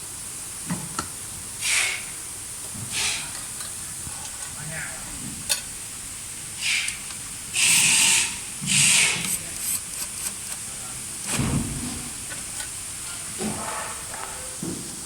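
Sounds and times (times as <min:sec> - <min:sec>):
short loud hissing bursts: 0:01.6 - 0:02.3, 0:02.9 - 0:03.3, 0:06.6 - 0:10.4.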